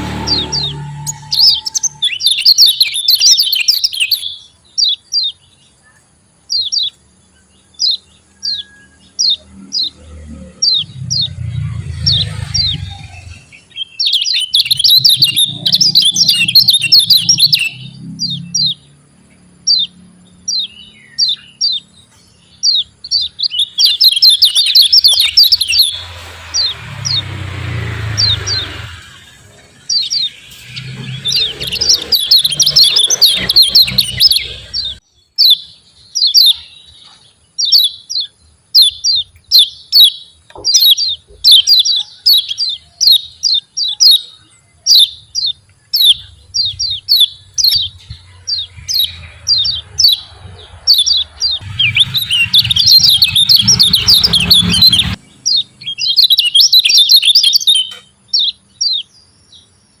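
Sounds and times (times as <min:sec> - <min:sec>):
bird chattering bursts: 0:00.0 - 0:04.3, 0:10.6 - 0:17.9, 0:23.5 - 0:35.0, 0:44.9 - 0:57.9
bird chirping sharply: 0:00.0 - 0:05.6, 0:07.7 - 0:59.8.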